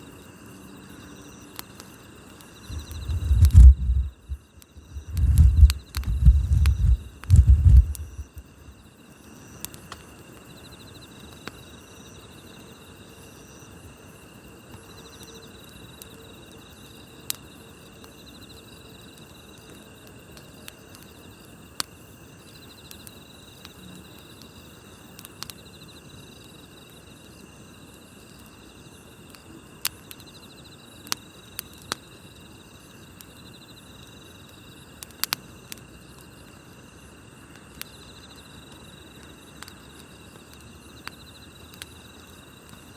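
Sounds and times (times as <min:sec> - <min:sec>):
night insects trilling: 0:00.0 - 0:42.9
campfire popping: 0:01.4 - 0:10.6, 0:19.6 - 0:42.9.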